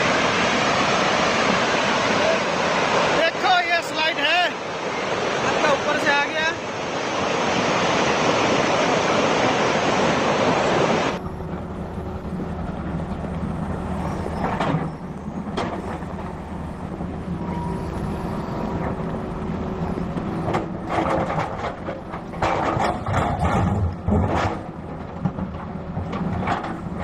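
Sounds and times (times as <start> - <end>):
excavator diesel engine running: 11.1 - 27.0.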